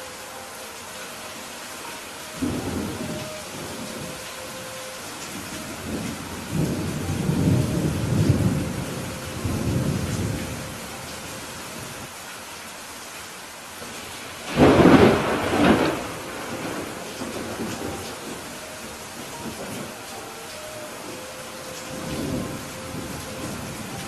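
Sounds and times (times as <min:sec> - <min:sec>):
rain falling: 0:00.0 - 0:24.0
thunder rumbling: 0:02.2 - 0:12.1, 0:14.0 - 0:24.0
loud thunderclap: 0:14.5 - 0:18.2.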